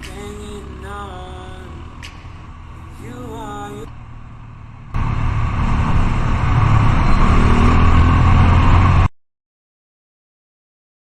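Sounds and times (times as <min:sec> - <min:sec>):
motorcycle engine rumble: 0:00.0 - 0:09.1.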